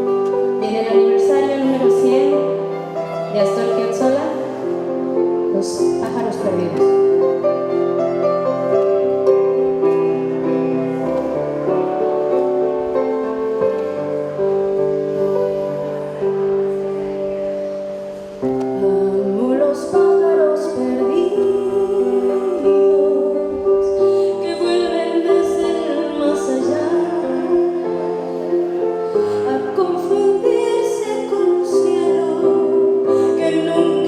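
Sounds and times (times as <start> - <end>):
piano sustained chords: 0.0 - 34.0
woman singing: 0.6 - 2.6, 18.7 - 34.0.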